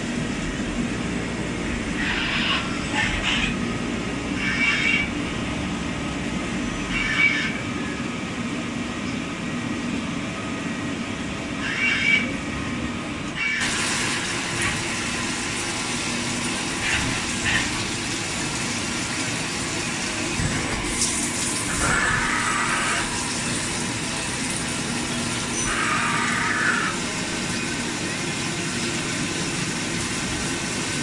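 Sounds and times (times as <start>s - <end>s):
bright hissy machine noise: 13.4s - 31.0s.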